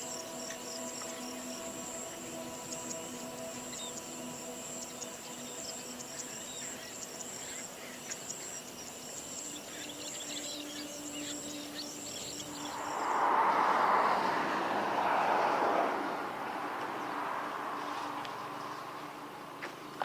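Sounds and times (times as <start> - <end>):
insect drone: 0.0 - 20.0
loud rushing noise: 12.6 - 16.6.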